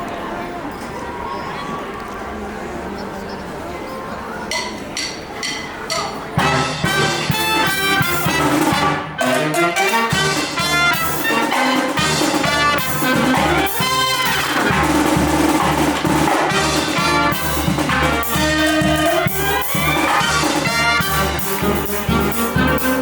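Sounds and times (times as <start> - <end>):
brass band playing upbeat tune: 6.3 - 23.0.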